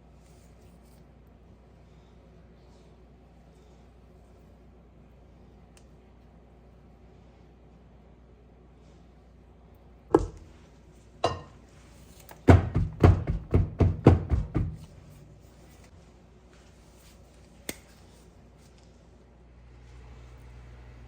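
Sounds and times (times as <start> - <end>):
hard knocks: 10.1 - 10.4, 12.5 - 14.9.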